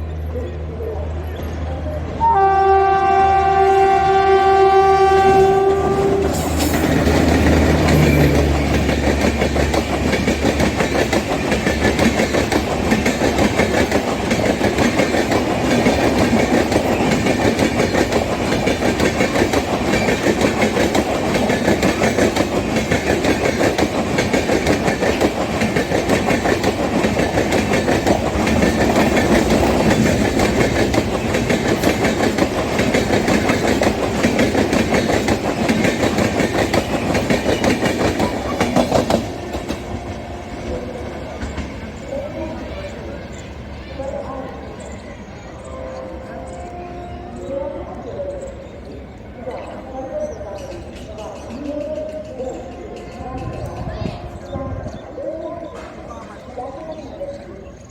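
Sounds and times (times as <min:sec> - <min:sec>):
train horn: 0:02.2 - 0:06.7, 0:45.6 - 0:47.8
train wheels clickety-clack: 0:05.3 - 0:43.4, 0:50.4 - 0:57.0.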